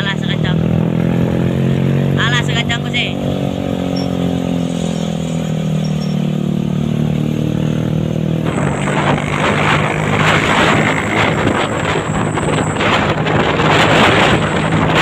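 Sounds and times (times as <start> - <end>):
truck engine running: 0.0 - 15.0
loud rushing noise: 6.7 - 15.0.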